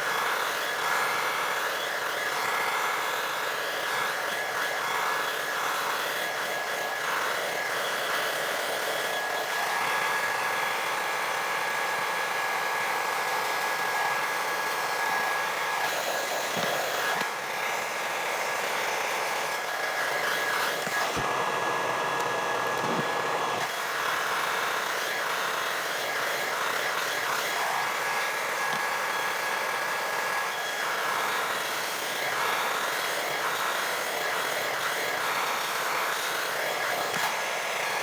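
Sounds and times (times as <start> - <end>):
blow dryer running: 0.0 - 38.0.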